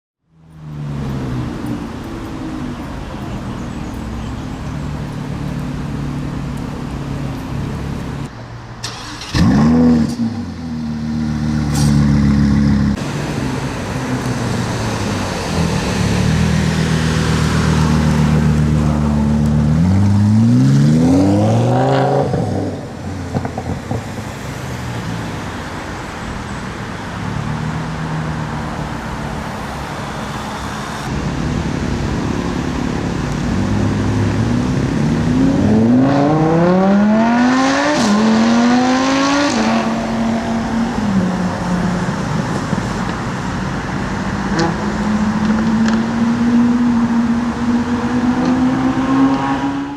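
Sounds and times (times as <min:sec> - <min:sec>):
sports car engine revving: 0:08.9 - 0:24.0, 0:33.4 - 0:41.5.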